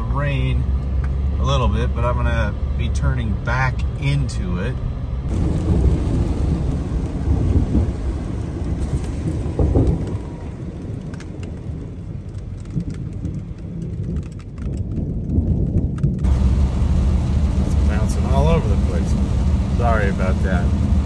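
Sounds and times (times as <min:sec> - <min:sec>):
rain: 0:05.3 - 0:21.0
rain ticking on truck: 0:05.3 - 0:21.0
truck driving on gravel: 0:05.3 - 0:21.0.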